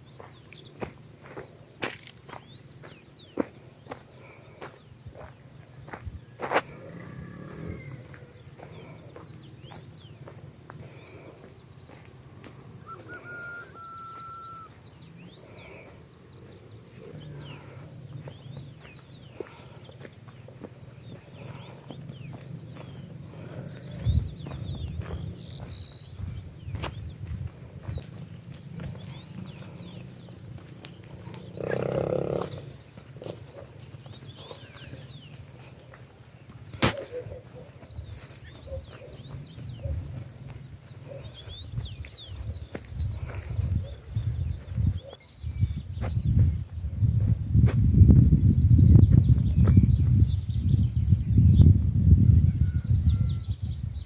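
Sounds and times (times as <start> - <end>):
wild birds singing and calling: 0.0 - 54.0
steady low rumble: 15.1 - 31.9.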